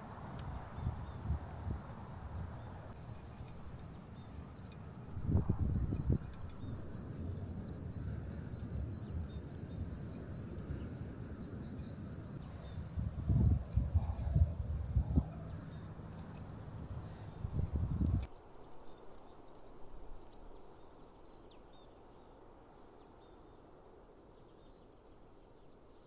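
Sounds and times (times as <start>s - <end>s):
cricket chirping: 0.0s - 18.3s
low thumps and rumbling: 0.0s - 18.3s.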